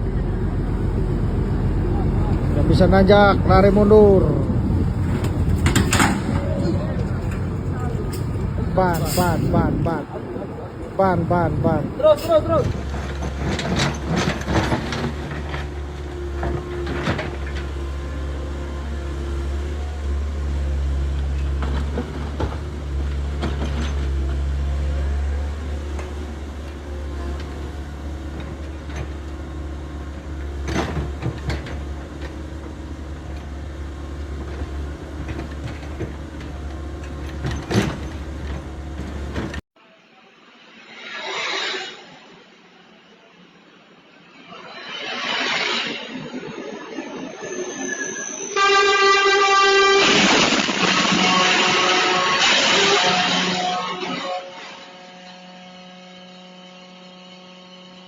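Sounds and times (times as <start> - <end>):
heavy truck engine straining: 0.0 - 39.6.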